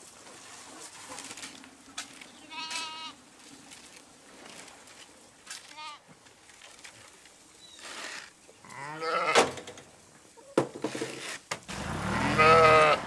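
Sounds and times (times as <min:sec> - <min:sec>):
sheep or goat bleating: 0:02.5 - 0:03.2, 0:08.6 - 0:09.4, 0:12.0 - 0:13.0.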